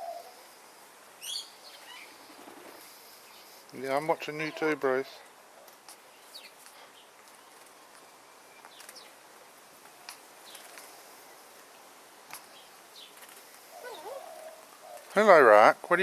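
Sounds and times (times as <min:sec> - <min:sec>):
low wavering bird call: 0:00.0 - 0:00.4, 0:13.8 - 0:15.0
birds chirping and squeaking: 0:01.2 - 0:03.6.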